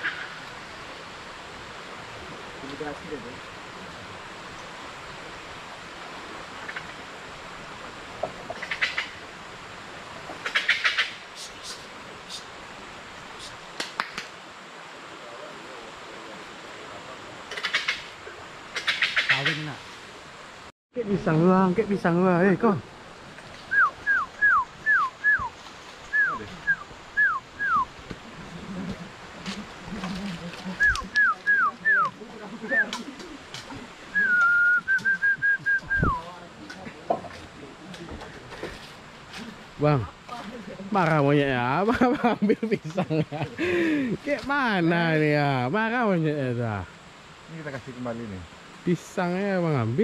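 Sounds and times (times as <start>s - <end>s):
flowing water rushing: 0.0s - 50.0s
rapid chattering animal calls: 8.5s - 9.2s, 10.4s - 12.5s, 17.5s - 19.8s.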